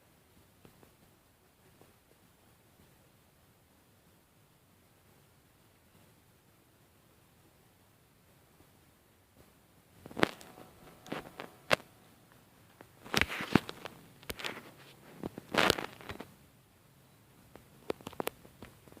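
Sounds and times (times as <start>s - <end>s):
rustling: 9.4s - 16.4s.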